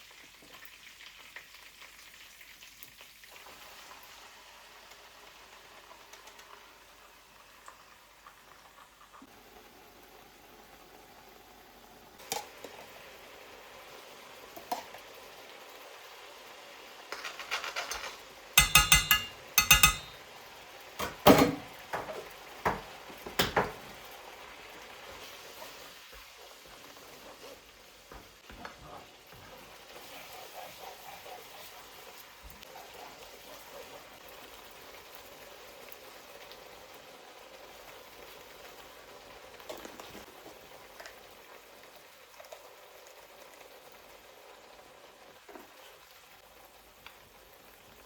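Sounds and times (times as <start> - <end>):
dishes and utensils knocking: 17.6 - 20.2, 21.0 - 23.8.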